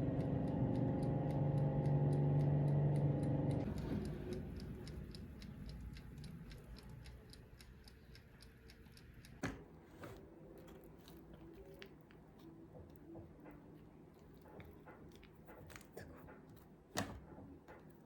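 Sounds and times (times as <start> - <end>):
rapid ticking: 0.0 - 9.4.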